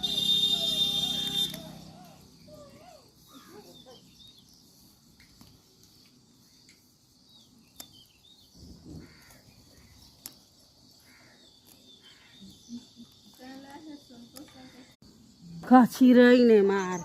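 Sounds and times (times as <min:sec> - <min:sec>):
faint bird calls: 0:08.6 - 0:10.4.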